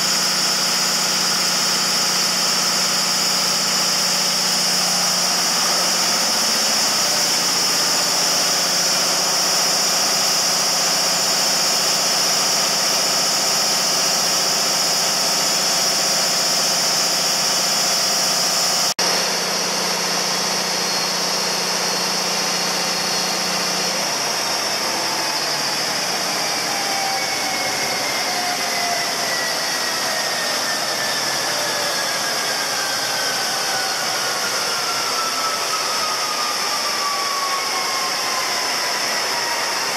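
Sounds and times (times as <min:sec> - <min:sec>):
diesel generator running: 0:00.0 - 0:39.9
turbocharger whine falling: 0:00.0 - 0:39.9.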